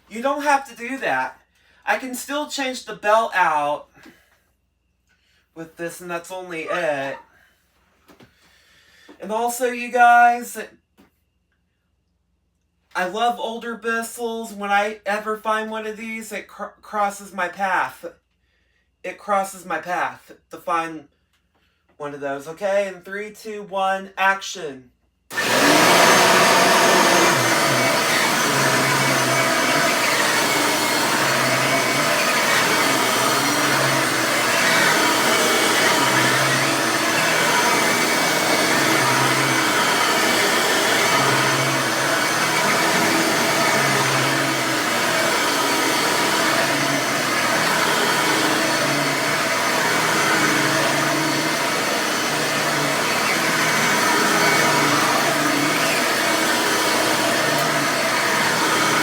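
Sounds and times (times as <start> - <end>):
vacuum cleaner motor whine: 25.3 - 59.0.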